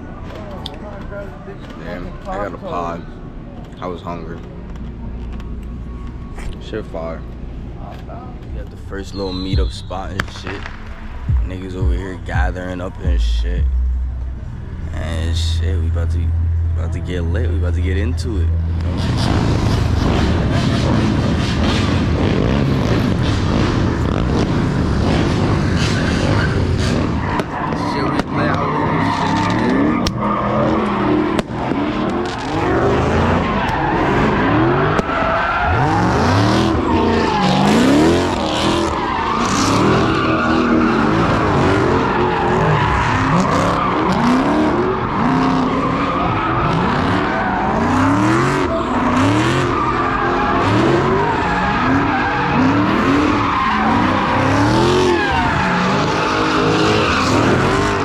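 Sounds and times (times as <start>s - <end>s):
tyre squeal: 9.0s - 10.3s, 18.9s - 58.0s
car engine revving hard: 15.0s - 58.0s.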